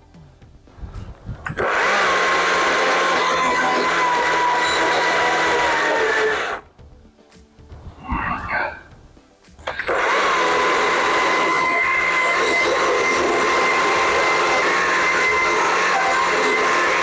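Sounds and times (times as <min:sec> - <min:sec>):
small chainsaw high whine: 0:01.5 - 0:06.6, 0:09.6 - 0:17.0.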